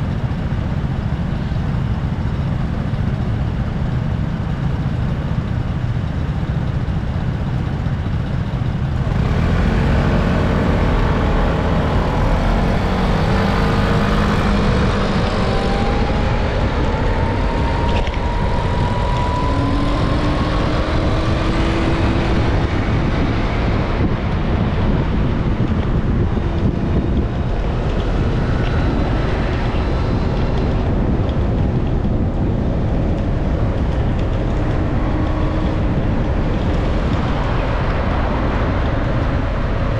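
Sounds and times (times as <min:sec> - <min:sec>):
road and traffic noise: 0:00.0 - 0:39.9
wind on microphone: 0:07.9 - 0:39.9
vehicle engine speeding up: 0:09.0 - 0:39.9.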